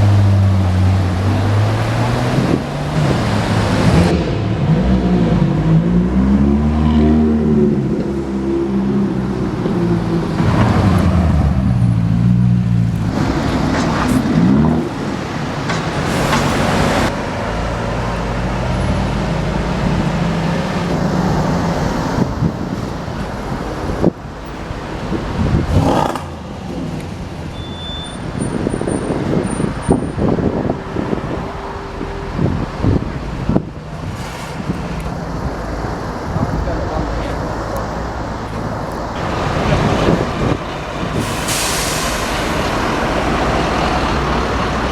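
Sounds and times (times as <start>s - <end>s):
car engine revving: 0.0s - 41.3s.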